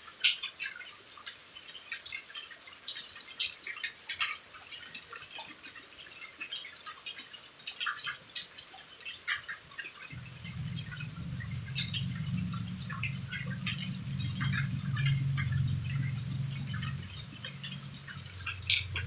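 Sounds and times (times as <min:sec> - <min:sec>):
rain drips and taps: 0:00.0 - 0:19.0
low steady hum: 0:10.1 - 0:19.0.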